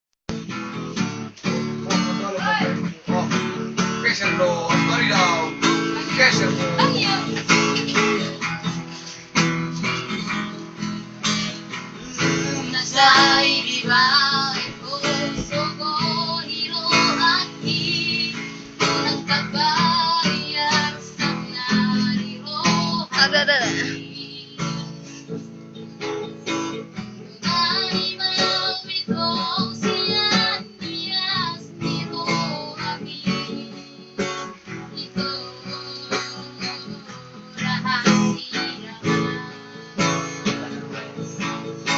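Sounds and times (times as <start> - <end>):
acoustic guitar strumming: 0.3 - 41.9
person singing high: 22.7 - 24.3.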